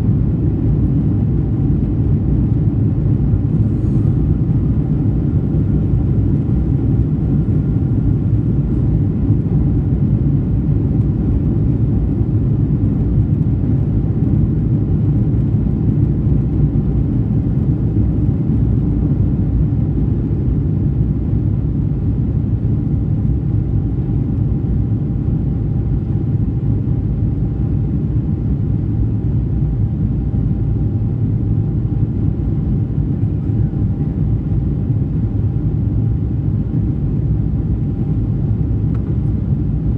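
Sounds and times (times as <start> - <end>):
jet engines rumbling in cabin: 0.0 - 39.9.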